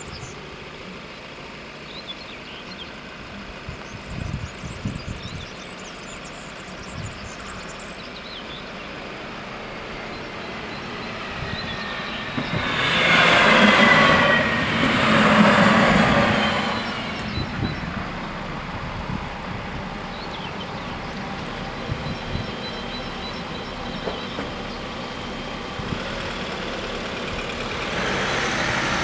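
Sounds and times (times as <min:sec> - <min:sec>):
diesel railcar passing: 0:00.0 - 0:29.0
wheels squealing: 0:07.6 - 0:29.0.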